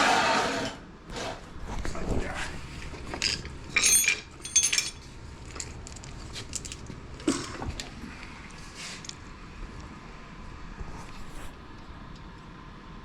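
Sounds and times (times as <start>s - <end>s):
metal tools clinking: 3.0s - 7.9s.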